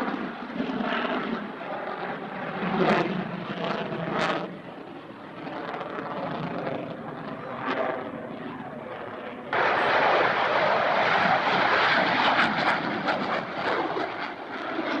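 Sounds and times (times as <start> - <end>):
aircraft engine noise: 0.0 - 15.0.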